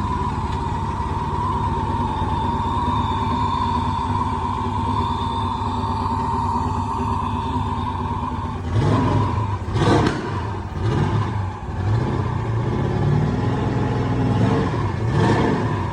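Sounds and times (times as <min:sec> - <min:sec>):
car engine idling and revving: 0:00.0 - 0:15.9.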